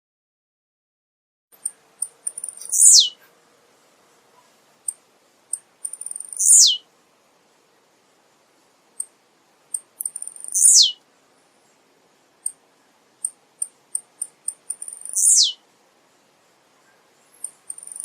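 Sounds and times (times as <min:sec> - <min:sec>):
bird singing high ticks: 0:01.6 - 0:03.2, 0:04.8 - 0:06.8, 0:09.0 - 0:11.0, 0:12.4 - 0:12.6, 0:13.2 - 0:15.6, 0:16.9 - 0:18.0.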